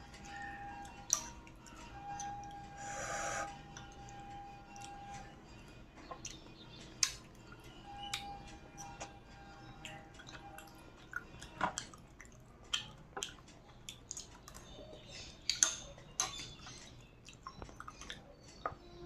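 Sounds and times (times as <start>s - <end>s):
wet chewing: 9.8s - 18.8s.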